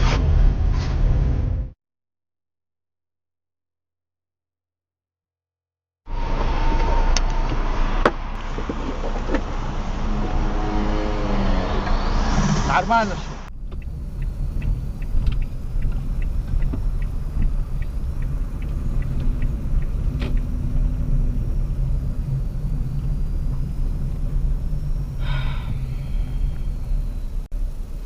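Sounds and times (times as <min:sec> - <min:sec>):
car engine and tyres rumbling: 0:06.1 - 0:28.0
light regular ticking: 0:13.5 - 0:21.0.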